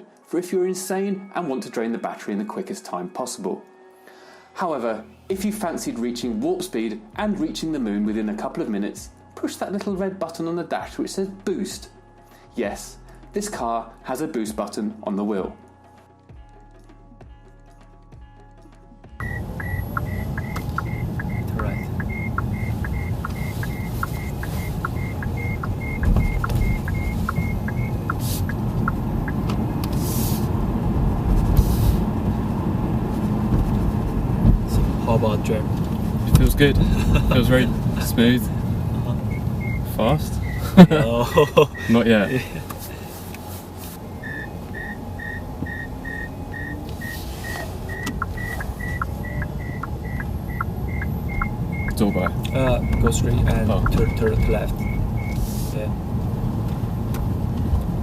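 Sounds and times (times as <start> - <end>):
electronic ticking: 19.2 - 29.5, 39.3 - 40.8, 44.1 - 55.4
car road and tyre rumble: 19.2 - 58.0.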